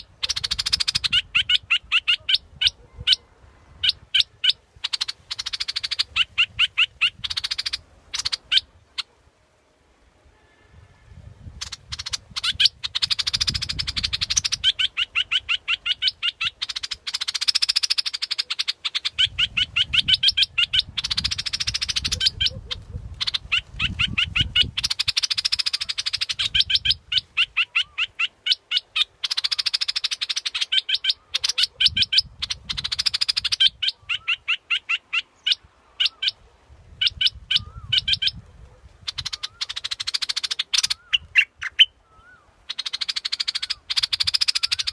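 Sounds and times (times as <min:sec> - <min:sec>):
bulbul calling rapid sharp notes: 0:42.8 - 0:44.9.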